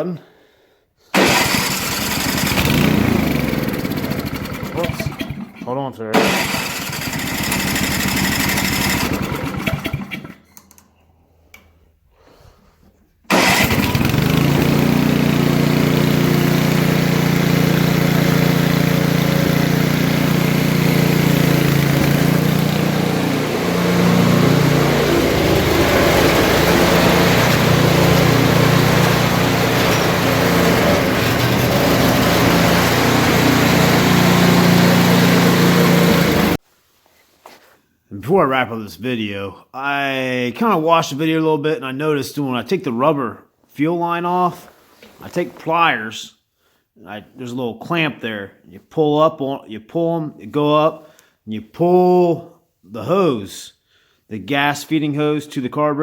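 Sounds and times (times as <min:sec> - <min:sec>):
snowblower engine running: 0:01.2 - 0:05.6, 0:06.2 - 0:10.4, 0:13.3 - 0:36.6.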